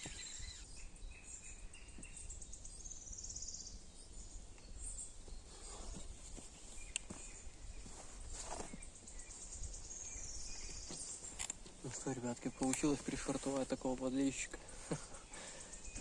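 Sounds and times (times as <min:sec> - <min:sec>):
soft sharp clicks: 0:12.5 - 0:13.0.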